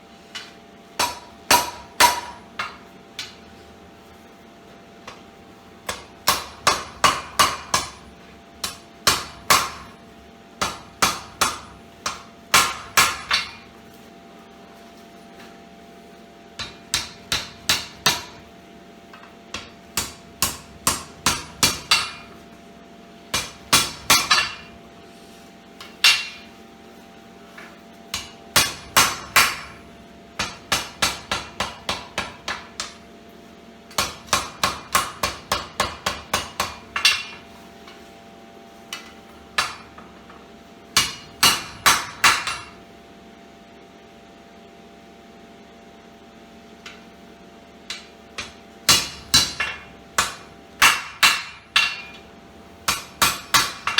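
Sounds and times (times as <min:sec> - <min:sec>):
faint steady hum: 0:00.0 - 0:53.9
hammer striking steel on anvil: 0:00.4 - 0:03.5, 0:05.8 - 0:10.0, 0:10.6 - 0:13.7, 0:16.6 - 0:18.4, 0:19.1 - 0:22.4, 0:23.3 - 0:24.8, 0:25.8 - 0:26.6, 0:28.1 - 0:29.8, 0:30.4 - 0:33.0, 0:33.9 - 0:38.0, 0:38.9 - 0:40.4, 0:41.0 - 0:42.8, 0:47.8 - 0:52.3, 0:52.9 - 0:53.9.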